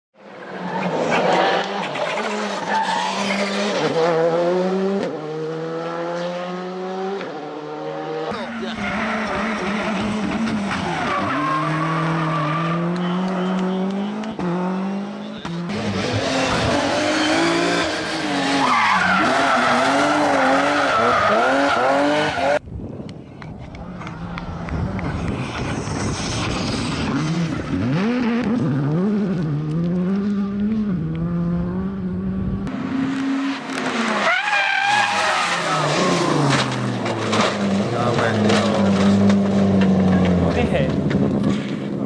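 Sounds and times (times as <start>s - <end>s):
rally car engines revving: 0.2s - 22.6s, 23.7s - 42.0s
tyres on gravel: 33.6s - 42.0s.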